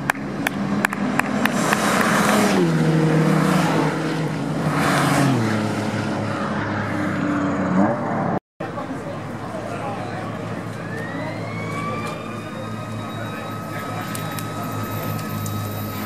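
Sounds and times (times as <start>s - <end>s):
race car engines running hard: 0.0s - 16.0s.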